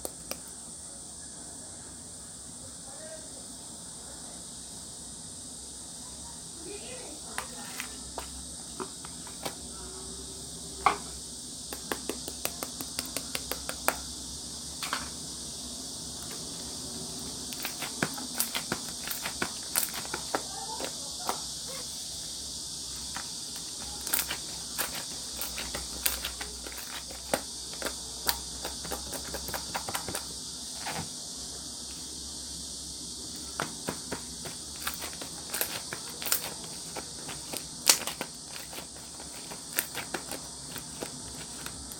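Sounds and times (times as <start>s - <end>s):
steady high hiss: 0.0s - 41.9s
slime squishing with sticky pops: 17.5s - 21.4s, 23.6s - 31.0s, 33.8s - 41.9s.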